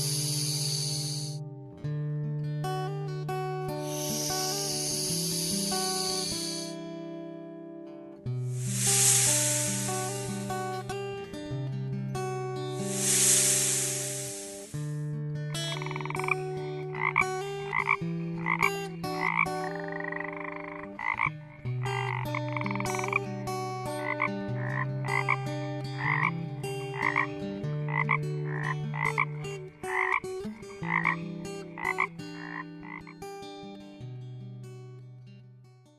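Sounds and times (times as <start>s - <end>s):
frog croaking: 0.0s - 1.4s, 3.9s - 6.7s, 8.6s - 10.4s, 15.6s - 23.3s, 24.0s - 25.4s, 26.0s - 26.3s, 26.9s - 27.3s, 27.9s - 33.2s
low held tones: 8.5s - 10.7s.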